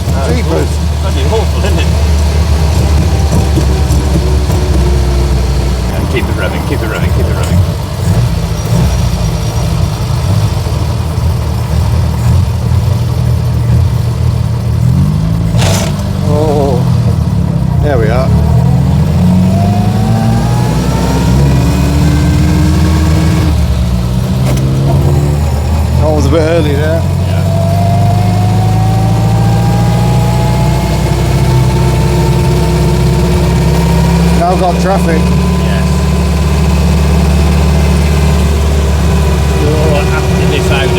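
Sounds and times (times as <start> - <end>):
car engine running: 0.0 - 40.9
thin rising whine: 0.5 - 7.0, 17.4 - 40.9.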